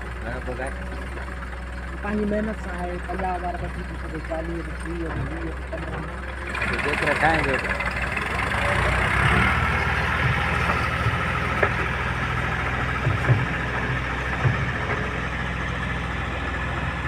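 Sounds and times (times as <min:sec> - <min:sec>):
diesel engine idling: 0:00.0 - 0:17.0
short low thumps: 0:09.5 - 0:15.4.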